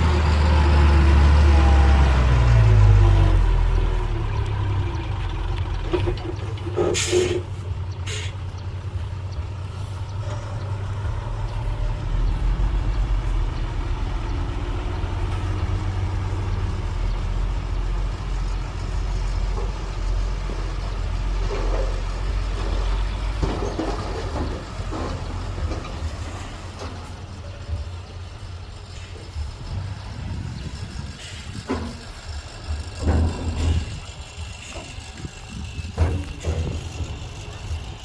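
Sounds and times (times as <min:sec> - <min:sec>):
truck engine rumbling: 0:00.0 - 0:38.0
air brake hisses: 0:06.9 - 0:08.4.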